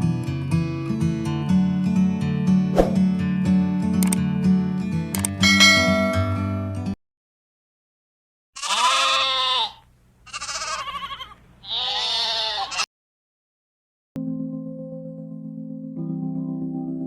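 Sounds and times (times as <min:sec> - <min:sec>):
sheep bleating: 0:08.6 - 0:12.9.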